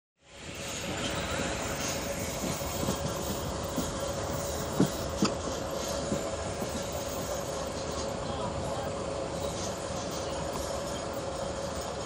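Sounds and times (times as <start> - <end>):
steady high hum: 0.2 - 12.0
train wheels rumbling on rails: 0.2 - 12.0
wheels clacking over rail joint: 0.6 - 8.7.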